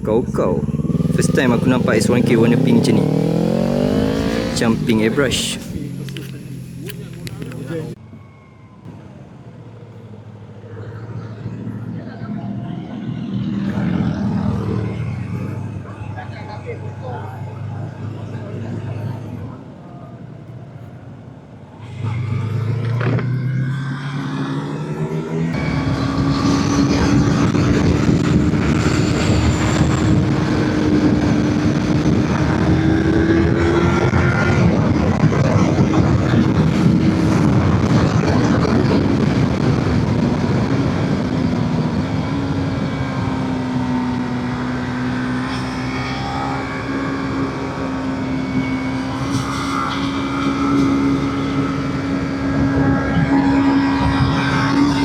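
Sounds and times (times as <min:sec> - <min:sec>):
motorcycle engine accelerating: 0:00.0 - 0:08.1, 0:08.8 - 0:55.0
wind rush on microphone: 0:25.6 - 0:45.0, 0:47.5 - 0:55.0.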